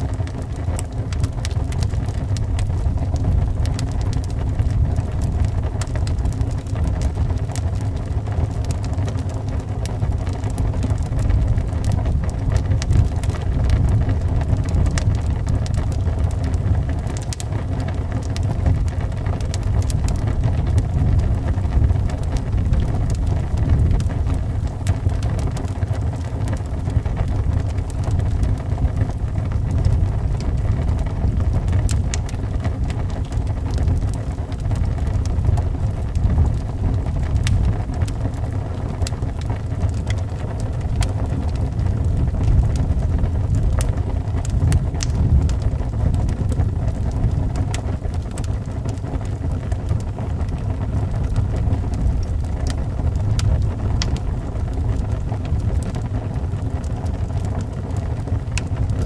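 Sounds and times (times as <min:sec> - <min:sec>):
low rumble of wind: 0:00.0 - 0:59.0
wood fire crackling and popping: 0:00.0 - 0:59.0.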